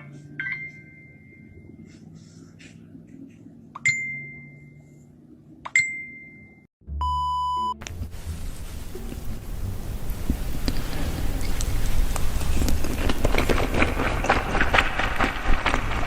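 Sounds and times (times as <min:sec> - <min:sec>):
bright dings: 0:00.0 - 0:01.8, 0:03.8 - 0:04.8, 0:05.7 - 0:07.8
short steady beep: 0:05.8 - 0:07.8
rough noisy sound: 0:07.8 - 0:16.0.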